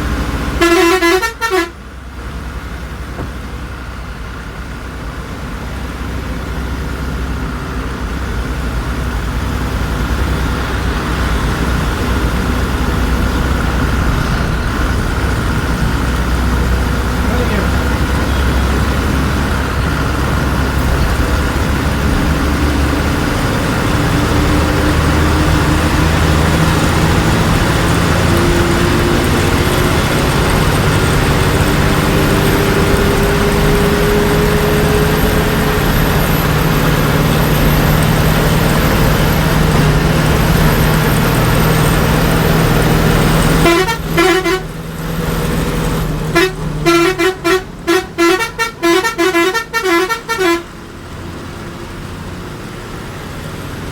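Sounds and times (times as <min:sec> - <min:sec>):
bus engine droning: 0:00.0 - 0:53.9
horn short blasts: 0:00.6 - 0:01.8, 0:43.6 - 0:44.8, 0:46.3 - 0:50.7.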